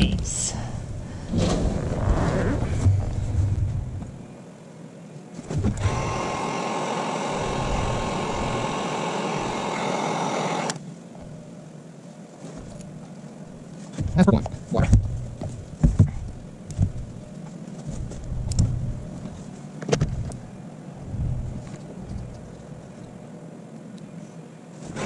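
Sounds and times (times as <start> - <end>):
low rumbling handling noise: 0.0 - 4.4, 12.5 - 23.3
steady hiss: 0.3 - 25.0.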